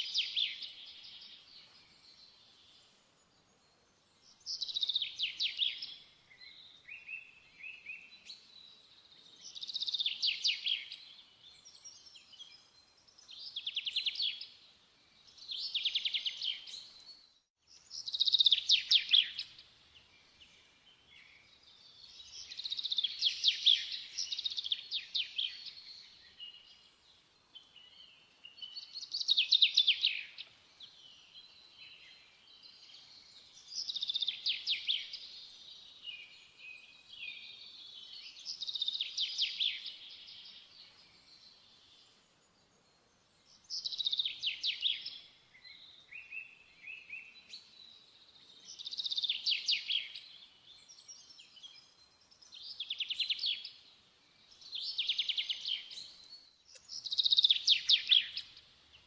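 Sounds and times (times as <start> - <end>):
songbird trilling: 56.7 - 58.5.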